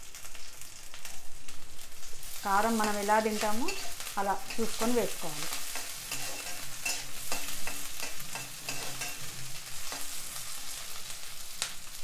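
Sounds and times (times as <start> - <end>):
onions sizzling in hot oil: 0.0 - 12.0
spatula scraping and tapping pan: 2.8 - 10.8.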